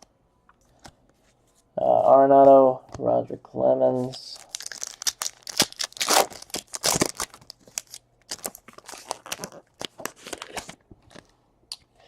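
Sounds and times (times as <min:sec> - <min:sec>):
card pack wrappers crinkling: 0:04.1 - 0:11.3.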